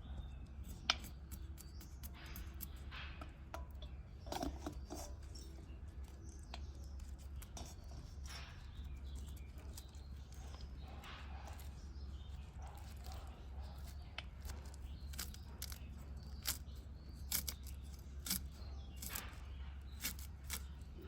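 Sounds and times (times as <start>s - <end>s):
steady low hum: 0.0s - 21.0s
soft blade cutting strokes: 12.7s - 21.0s.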